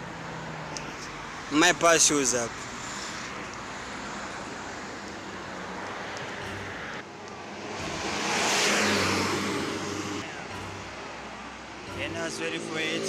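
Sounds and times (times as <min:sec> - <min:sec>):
street noise: 0:00.0 - 0:13.0
bus driving past: 0:02.6 - 0:13.0.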